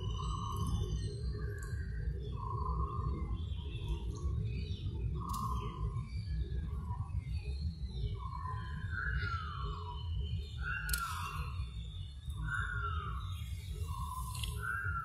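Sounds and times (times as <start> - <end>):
birds whistling: 8.2 - 15.0.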